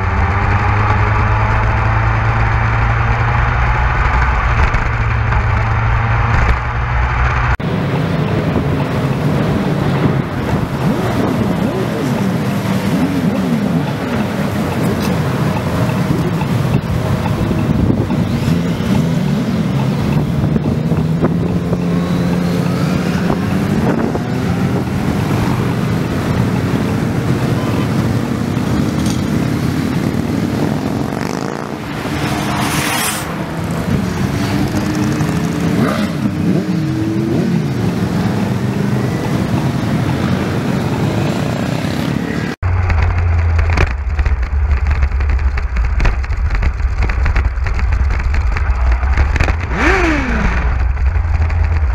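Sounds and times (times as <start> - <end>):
low engine drone: 0.0 - 18.8, 42.5 - 51.9
motorcycle engines revving: 0.0 - 51.9.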